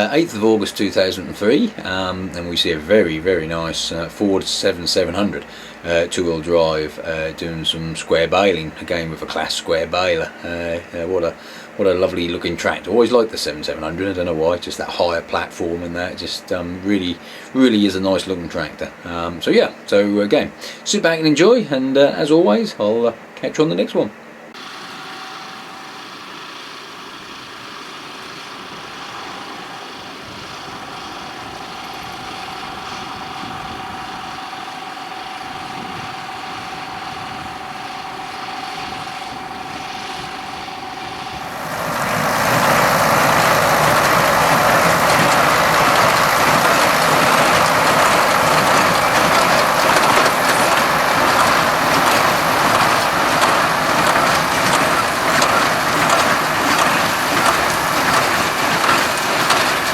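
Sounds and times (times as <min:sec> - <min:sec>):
steady machine whine: 0:00.0 - 0:19.4, 0:24.5 - 0:59.9
tractor running: 0:00.0 - 0:19.7, 0:24.6 - 0:59.9
baler machinery noise: 0:00.0 - 0:21.6, 0:24.5 - 0:59.9.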